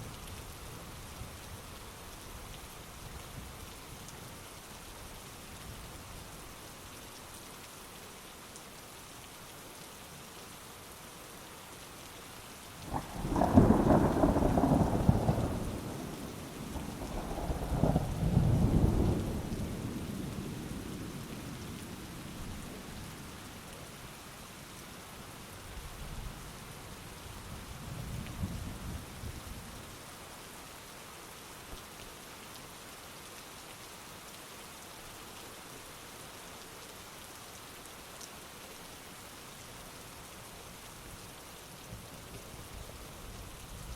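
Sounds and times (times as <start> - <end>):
heavy rain falling: 0.0 - 43.9
thunder rumbling: 12.9 - 21.3.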